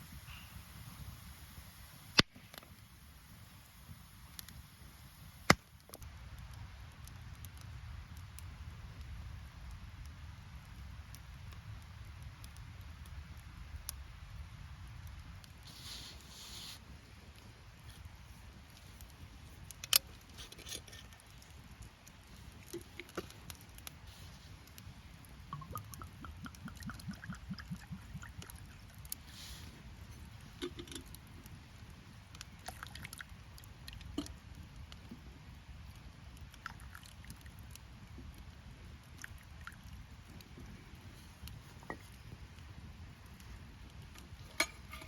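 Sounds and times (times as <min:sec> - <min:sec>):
low background hiss: 0:00.0 - 0:45.0
small clicks and knocks: 0:30.6 - 0:31.2.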